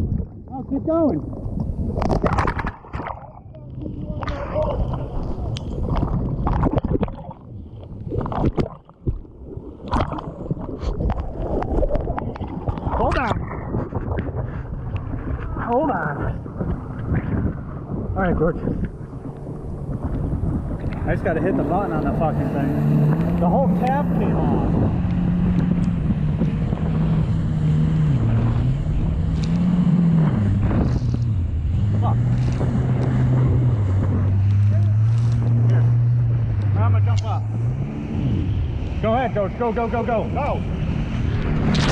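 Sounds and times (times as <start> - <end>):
low rumble: 0.0 - 41.9
water splashing and sloshing: 0.0 - 41.9
jet ski engine running: 18.7 - 41.9.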